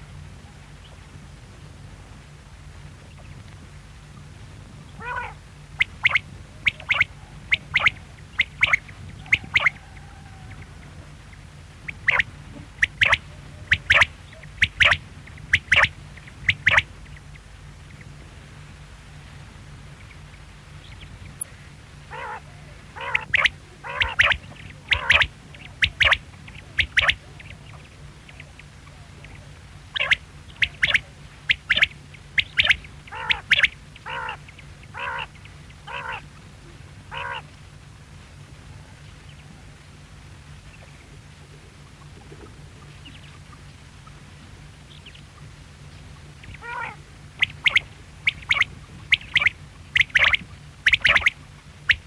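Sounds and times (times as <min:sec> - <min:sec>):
steady low hum: 0:00.0 - 0:52.0
quail calling: 0:04.9 - 0:18.1, 0:22.1 - 0:36.4, 0:37.1 - 0:37.5, 0:46.1 - 0:52.0.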